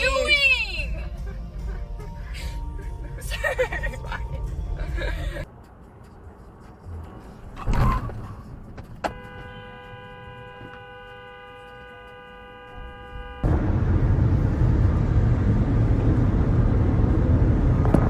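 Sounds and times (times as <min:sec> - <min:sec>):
car horn blast: 0:09.0 - 0:13.6.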